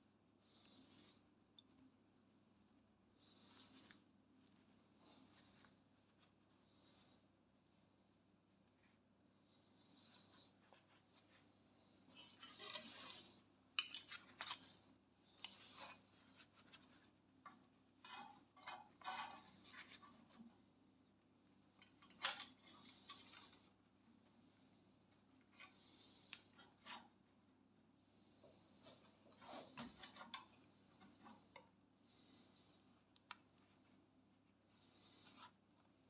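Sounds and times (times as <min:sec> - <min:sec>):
scraping and rubbing: 0:10.2 - 0:20.5.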